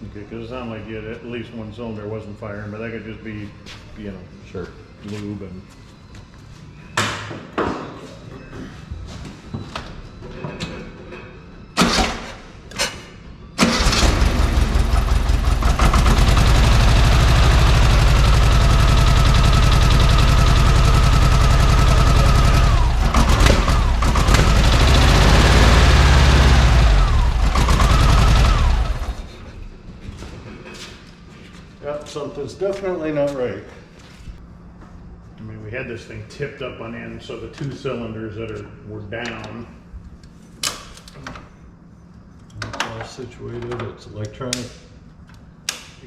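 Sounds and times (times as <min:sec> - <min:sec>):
car engine running rough: 0:13.8 - 0:29.5.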